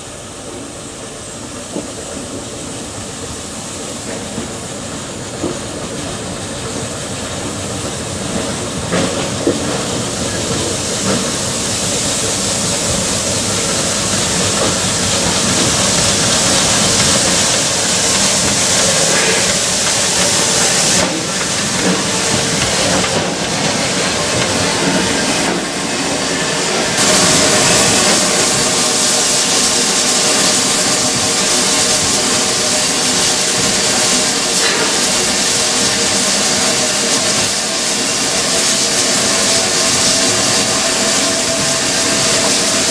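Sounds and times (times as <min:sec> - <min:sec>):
steam locomotive hissing: 0:00.0 - 0:42.9.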